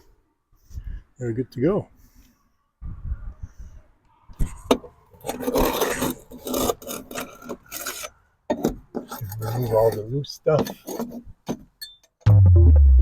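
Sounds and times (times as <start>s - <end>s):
hand tool scraping wood: 5.2s - 11.7s.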